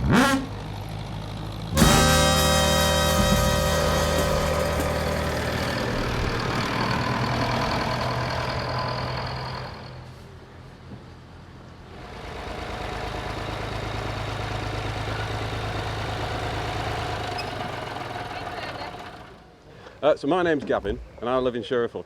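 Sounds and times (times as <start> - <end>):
tractor engine running: 0.0 - 9.9, 12.1 - 19.4.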